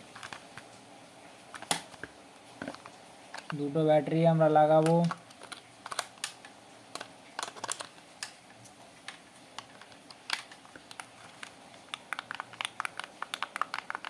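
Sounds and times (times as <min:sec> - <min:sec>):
plastic clicks and taps: 0:09.1 - 0:14.0.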